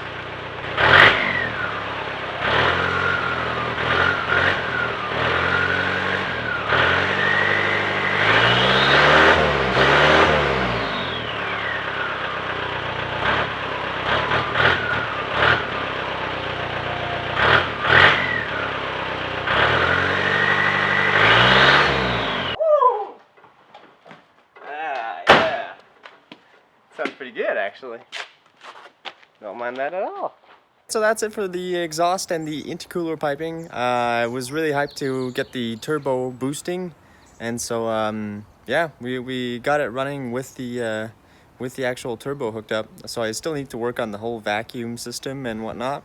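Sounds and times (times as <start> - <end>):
diesel engine revving: 0.0 - 22.6, 30.9 - 46.0
turbo whine: 0.0 - 22.6.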